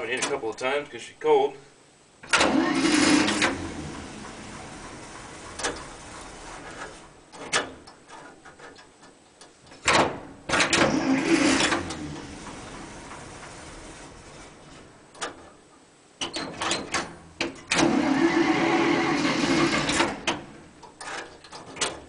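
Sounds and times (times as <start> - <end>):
engine starter cranking: 2.2 - 7.7, 9.9 - 15.5, 16.2 - 22.0.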